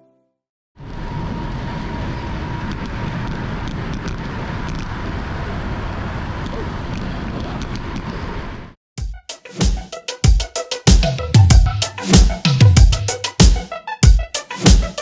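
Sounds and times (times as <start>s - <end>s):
road noise: 0.8s - 8.8s
wind rumble on microphone: 0.8s - 8.8s.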